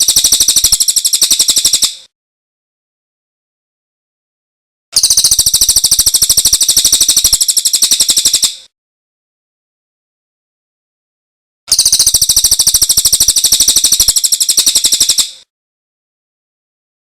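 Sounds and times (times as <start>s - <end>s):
songbird trill: 0.0s - 2.1s, 5.0s - 8.7s, 11.7s - 15.4s.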